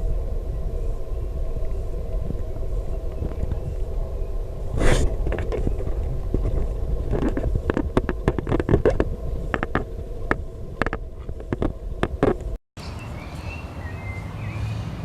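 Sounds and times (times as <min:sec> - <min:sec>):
wind rumble on microphone: 0:00.0 - 0:15.0
sharp clicks and crackles: 0:04.8 - 0:12.6.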